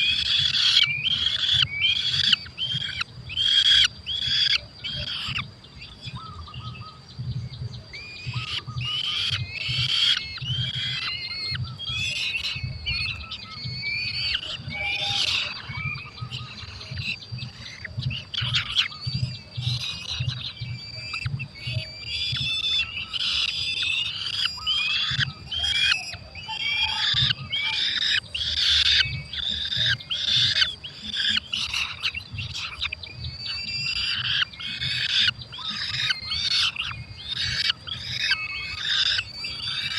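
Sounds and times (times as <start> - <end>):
falcon nestlings calling: 0.0 - 7.0, 7.9 - 39.9.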